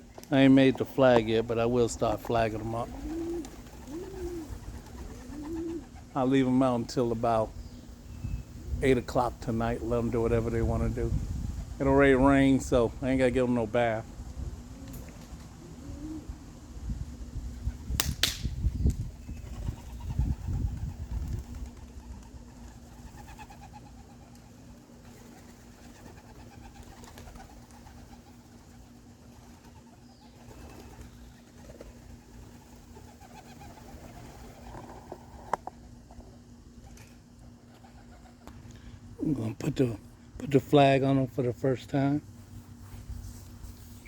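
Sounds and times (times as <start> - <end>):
pigeons cooing: 1.6 - 8.8, 14.4 - 16.8, 19.3 - 39.0
wind buffeting microphone: 7.6 - 12.6, 16.8 - 21.8.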